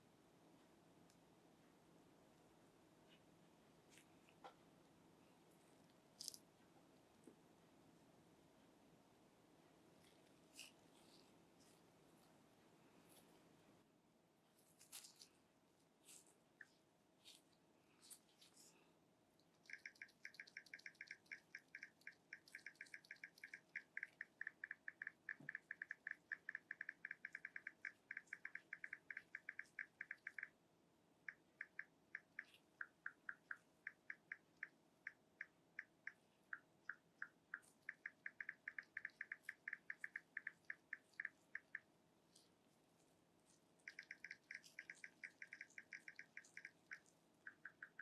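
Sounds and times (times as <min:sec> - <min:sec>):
phone keyboard typing ticks: 0:19.4 - 0:30.6, 0:31.3 - 0:41.9, 0:43.8 - 0:48.0.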